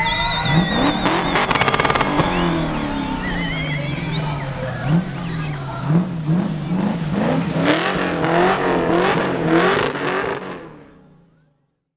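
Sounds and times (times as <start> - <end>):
car engine revving in blips: 0.0 - 11.3.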